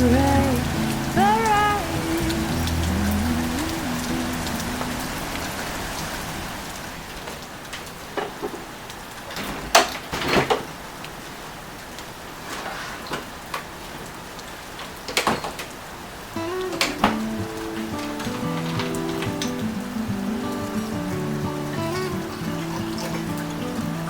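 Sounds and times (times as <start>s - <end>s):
rain falling on a surface: 0.0s - 24.0s
soft background music: 16.4s - 24.0s.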